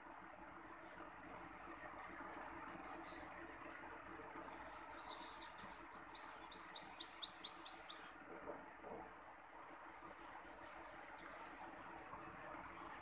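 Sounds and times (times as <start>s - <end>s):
songbird singing: 4.4s - 8.1s, 10.0s - 11.8s.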